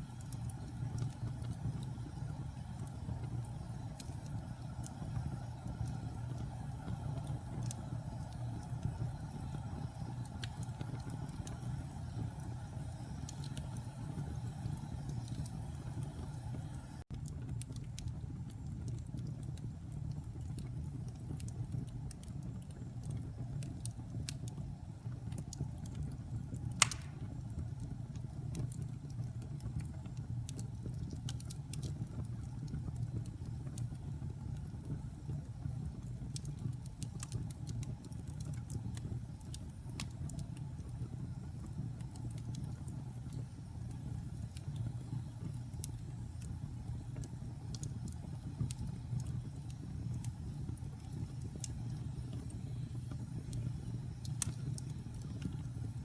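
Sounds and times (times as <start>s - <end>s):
wood fire crackling: 0.0s - 56.0s
loud pop of fire: 26.8s - 27.5s.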